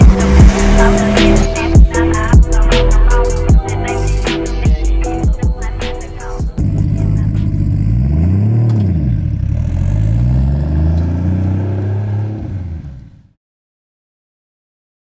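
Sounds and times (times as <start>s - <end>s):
car engine revving hard: 0.0s - 4.2s, 6.6s - 13.3s.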